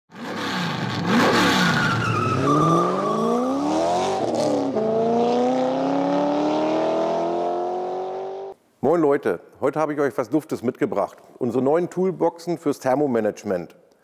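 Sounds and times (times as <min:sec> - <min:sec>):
car engine revving: 0:00.2 - 0:08.6.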